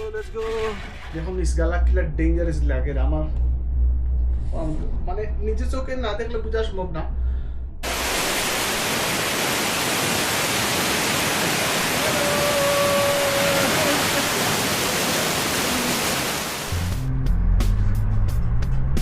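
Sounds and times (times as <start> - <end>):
waterfall rushing: 7.8 - 17.0.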